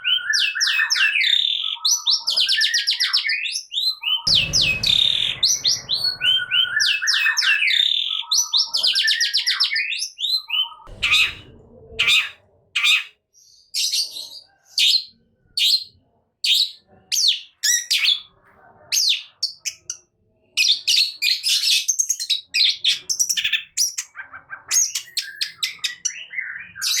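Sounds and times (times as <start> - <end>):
short low rumble: 4.3 - 7.3, 10.9 - 12.3.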